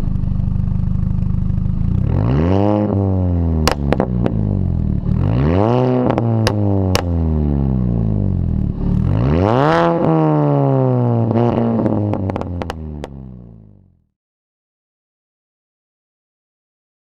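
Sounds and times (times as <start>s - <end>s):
car engine revving: 1.6s - 13.8s
exhaust pops and crackles: 3.6s - 4.5s, 6.0s - 7.2s, 11.2s - 13.2s.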